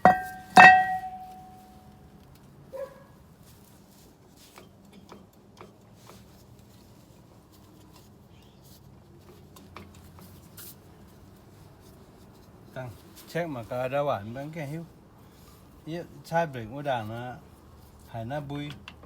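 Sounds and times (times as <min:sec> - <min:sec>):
short ringing clink: 0:00.0 - 0:01.8
low steady hum: 0:00.0 - 0:02.2.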